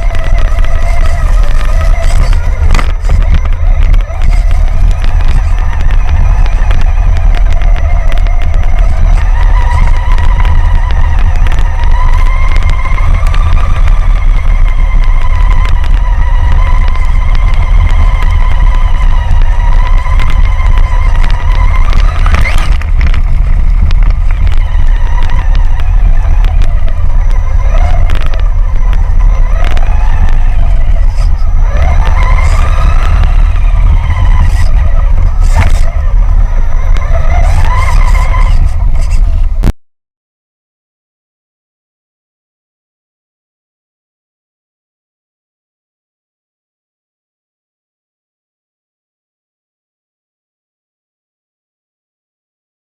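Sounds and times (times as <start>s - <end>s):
electric motor whining: 0.0s - 39.7s
heavy low rumble: 0.0s - 39.8s.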